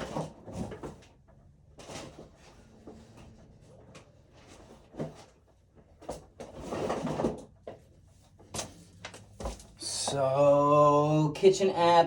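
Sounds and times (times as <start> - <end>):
scraping or rustling: 6.0 - 7.5.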